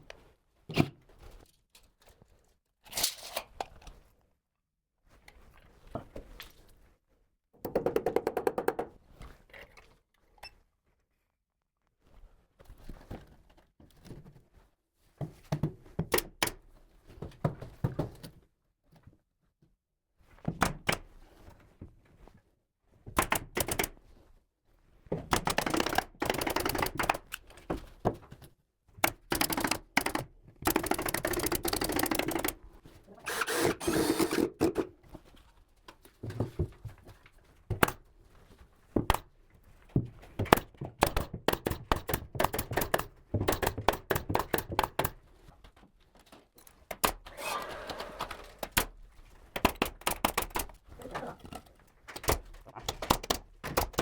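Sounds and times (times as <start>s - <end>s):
carpentry knocking and clattering: 7.6s - 9.0s, 40.0s - 45.2s, 51.4s - 54.0s.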